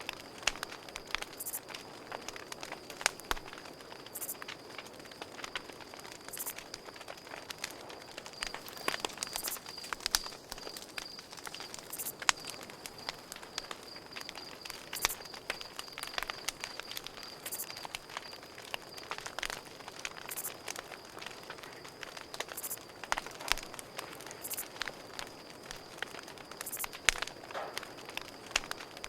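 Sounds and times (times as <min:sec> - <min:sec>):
campfire crackling and popping: 0:00.0 - 0:29.0
crickets chirping: 0:00.0 - 0:29.0.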